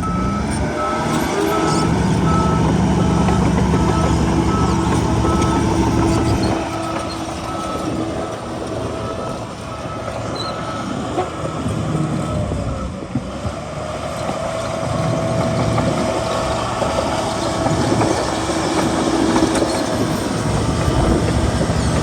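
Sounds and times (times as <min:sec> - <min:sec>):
reversing alarm beeps: 0:00.0 - 0:12.6
diesel engine: 0:00.0 - 0:22.0.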